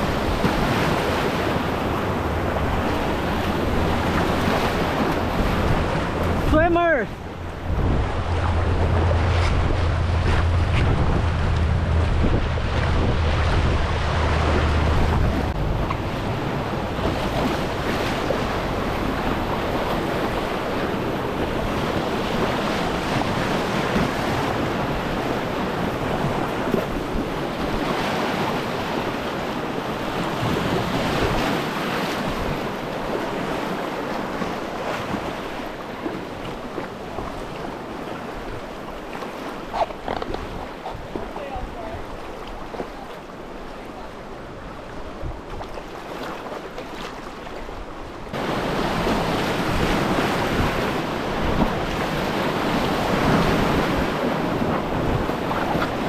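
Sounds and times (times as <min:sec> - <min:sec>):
river rapids rushing: 0:00.0 - 0:24.2, 0:48.3 - 0:56.0
wind buffeting microphone: 0:00.0 - 0:38.9, 0:47.7 - 0:56.0.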